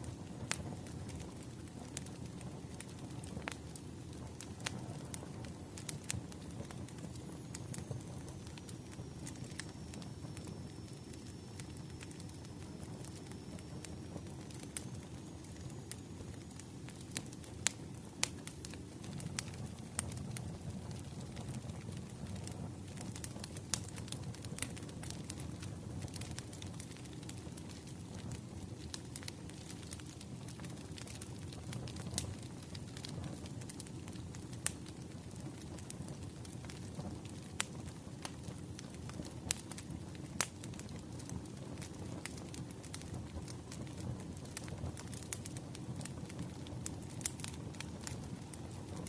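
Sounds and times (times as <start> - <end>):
low rumble of burning logs: 0.0 - 49.0
wood fire crackling and popping: 0.0 - 49.0.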